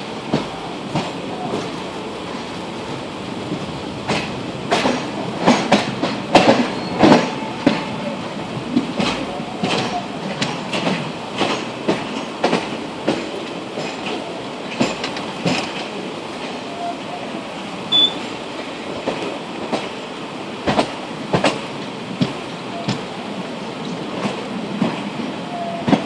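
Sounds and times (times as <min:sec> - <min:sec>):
train rumbling on rails: 0:00.0 - 0:26.0
wheels clattering over rail joints: 0:03.5 - 0:07.9, 0:08.7 - 0:16.6.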